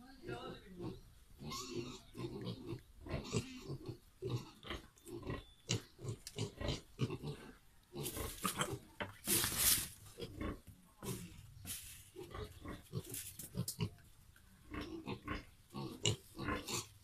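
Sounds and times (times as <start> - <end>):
pigs grunting: 0.5 - 9.1, 10.1 - 11.4, 14.6 - 17.0.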